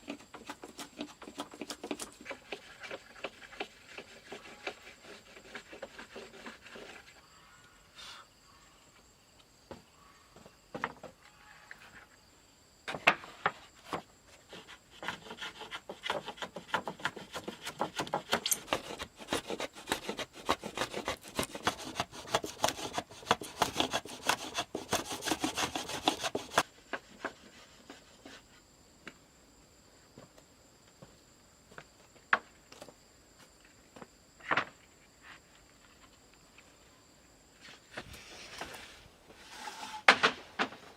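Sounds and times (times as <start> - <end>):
hand tool rasping wood: 0.0 - 7.2, 14.4 - 28.1.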